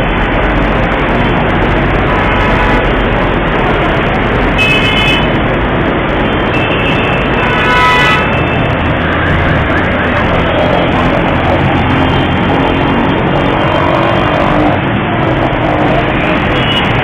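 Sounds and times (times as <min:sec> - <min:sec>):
road traffic noise: 0:00.0 - 0:17.0
vehicle horns honking: 0:01.9 - 0:03.2, 0:04.5 - 0:05.4, 0:06.5 - 0:08.8, 0:16.1 - 0:17.0.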